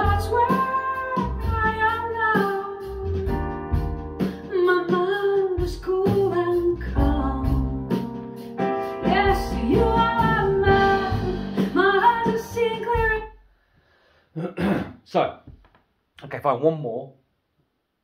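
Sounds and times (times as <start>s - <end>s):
woman singing over instruments: 0.0s - 3.4s, 4.4s - 8.0s, 9.0s - 13.3s.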